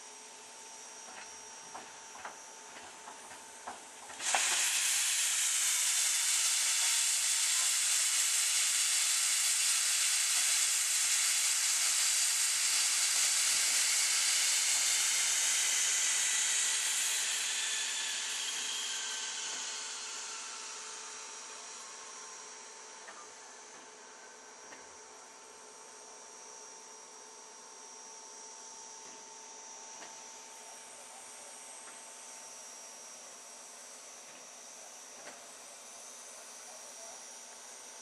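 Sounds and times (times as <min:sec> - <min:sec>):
steam locomotive hissing: 0:03.8 - 0:23.2.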